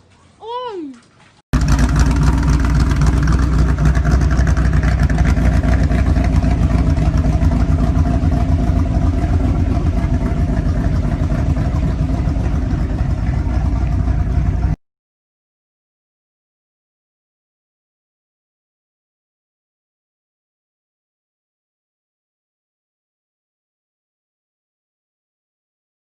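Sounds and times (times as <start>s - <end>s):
car engine running: 1.6s - 14.8s.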